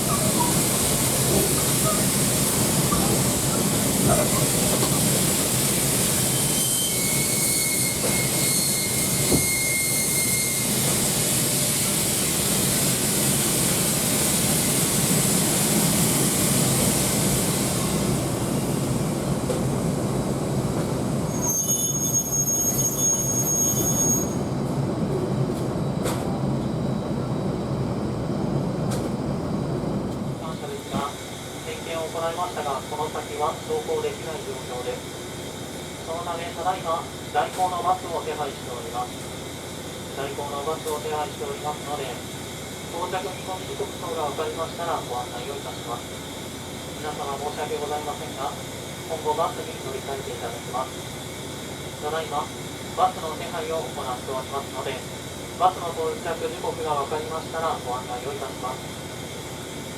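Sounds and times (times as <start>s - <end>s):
train rumble: 0.0s - 6.4s
high metallic squeals: 6.3s - 10.8s, 21.3s - 24.5s.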